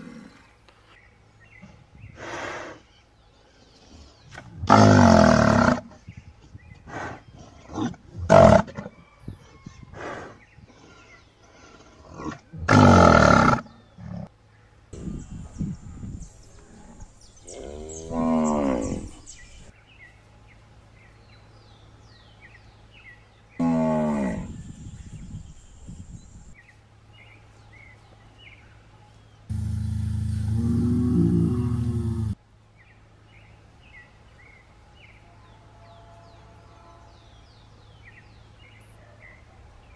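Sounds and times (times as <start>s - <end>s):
cattle mooing: 29.5s - 32.4s.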